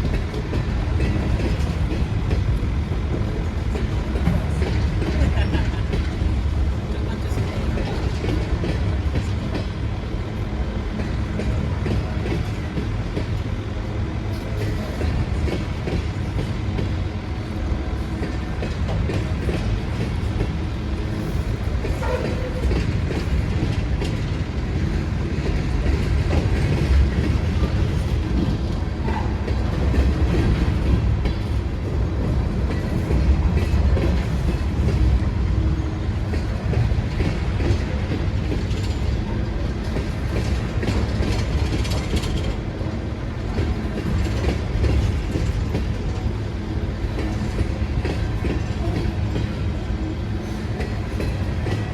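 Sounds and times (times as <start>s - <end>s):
train wheels clattering on rails: 0.0s - 51.9s.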